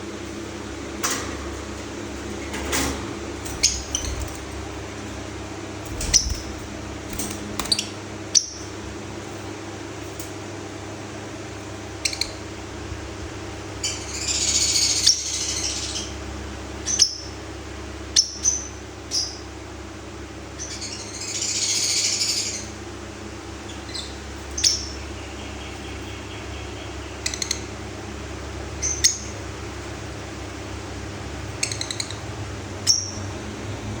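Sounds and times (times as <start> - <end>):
lovebirds chirping: 3.4 - 4.8, 5.8 - 8.8.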